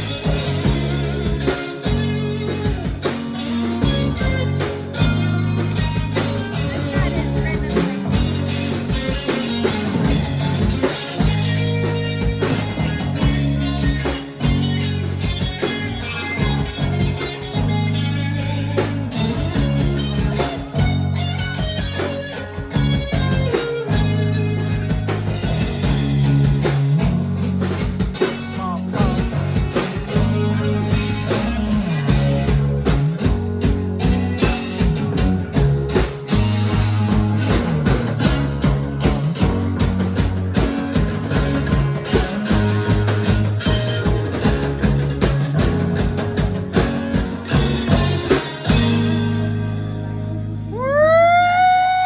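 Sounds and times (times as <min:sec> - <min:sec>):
steady drum beat: 0:00.0 - 0:49.4
bass line: 0:00.0 - 0:52.0
electric guitar: 0:00.0 - 0:52.0.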